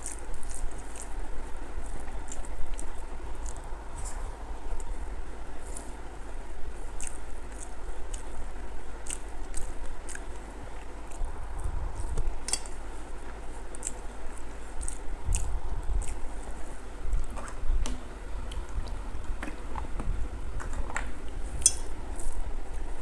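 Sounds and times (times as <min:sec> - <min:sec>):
chewing with lip smacks: 0:00.0 - 0:05.0, 0:06.6 - 0:17.7
low steady rumble: 0:00.0 - 0:23.0.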